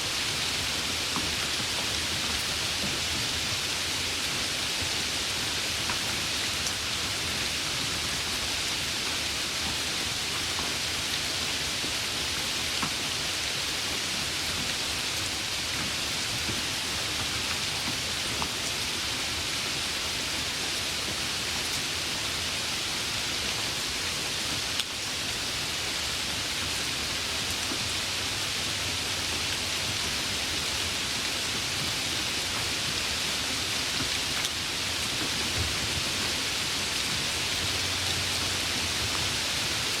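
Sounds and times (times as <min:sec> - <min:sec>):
heavy rain: 0:00.0 - 0:40.0.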